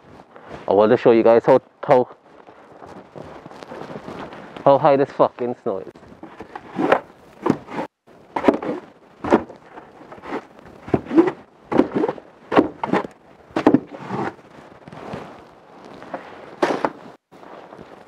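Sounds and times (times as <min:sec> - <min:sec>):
footsteps crunching in snow: 0:02.0 - 0:05.5, 0:13.8 - 0:18.0.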